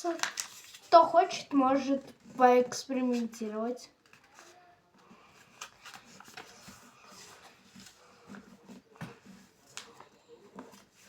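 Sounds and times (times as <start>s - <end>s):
paper rustling and crinkling: 0.0s - 1.4s, 4.0s - 11.0s.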